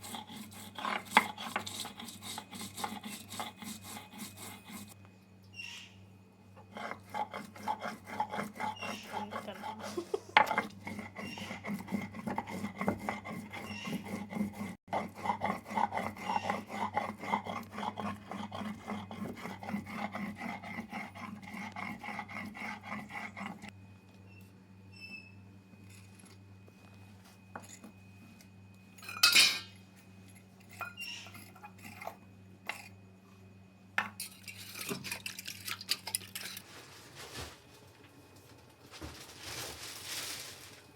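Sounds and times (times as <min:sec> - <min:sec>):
knife cutting beans on a board: 0:00.0 - 0:05.0.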